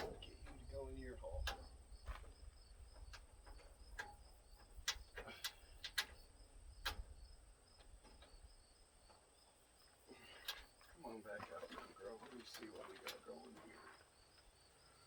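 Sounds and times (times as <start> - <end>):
faint pulsing insect chirp: 0.0 - 15.0
light clicks and taps of hardware: 1.3 - 2.2, 3.0 - 7.1.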